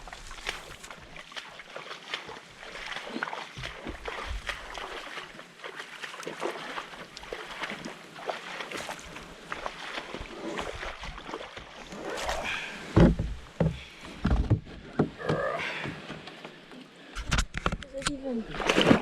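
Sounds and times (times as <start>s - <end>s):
water sloshing: 0.0s - 19.0s
knocks against canoe hull: 12.9s - 16.1s.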